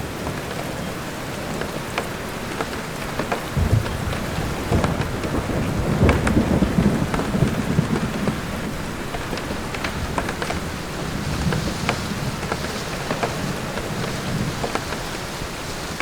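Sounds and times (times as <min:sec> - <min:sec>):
raindrops ticking: 0:00.0 - 0:16.0
steady rain: 0:00.0 - 0:16.0
thunder rolling: 0:00.0 - 0:16.0.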